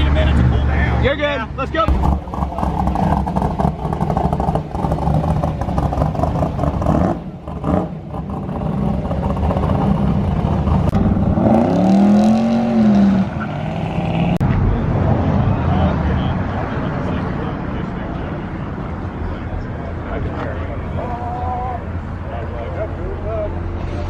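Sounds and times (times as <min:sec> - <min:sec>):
car engine running: 0:01.7 - 0:11.5.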